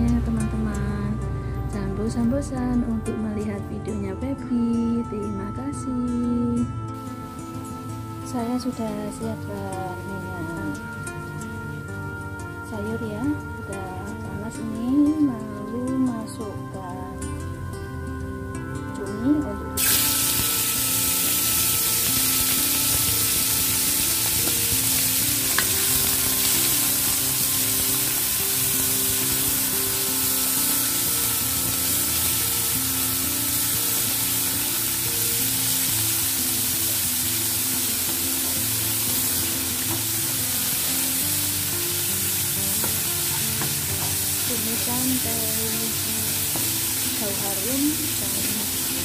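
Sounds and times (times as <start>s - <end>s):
squid sizzling in wok: 7.0s - 12.6s, 19.8s - 49.0s.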